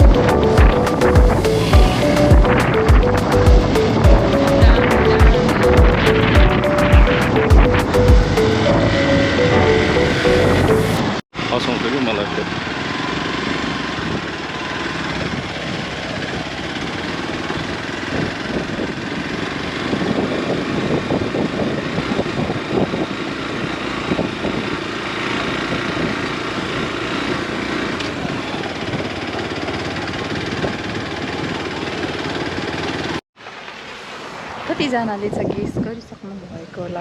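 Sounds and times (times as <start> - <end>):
road noise: 0.0 - 37.0
vehicle engine: 0.0 - 37.0.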